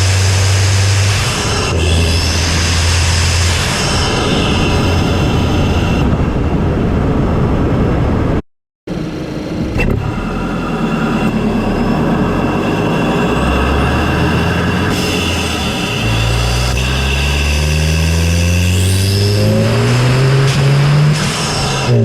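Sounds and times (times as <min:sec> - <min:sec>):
car engine and intake noise: 0:08.9 - 0:22.0.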